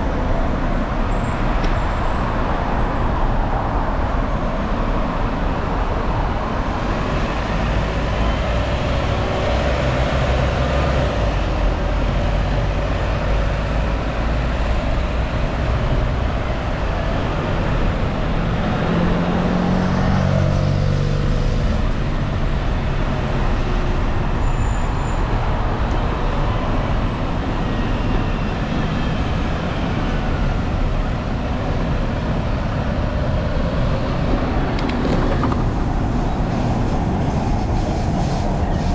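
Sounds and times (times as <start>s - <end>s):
road traffic noise: 0.0s - 38.9s
vehicle engine passing: 17.0s - 23.1s
wind rushing over microphone: 25.2s - 38.9s.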